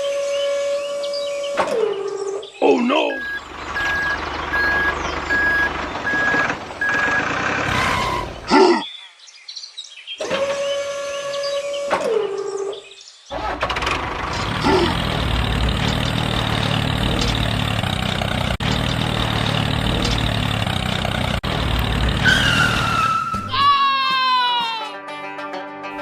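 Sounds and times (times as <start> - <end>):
small motor whining: 10.2 - 12.7.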